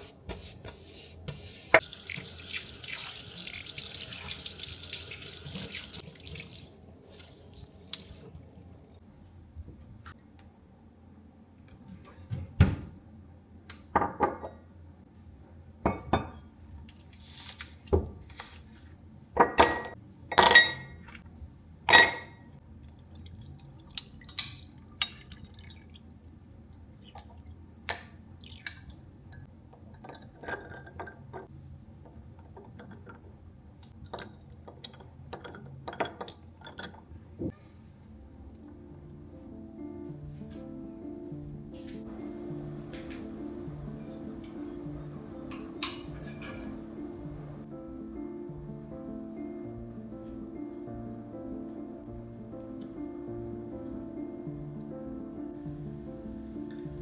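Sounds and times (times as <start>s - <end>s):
glass and dishes clinking: 15.9s - 16.4s, 19.4s - 21.0s, 21.9s - 22.4s, 43.9s - 47.6s.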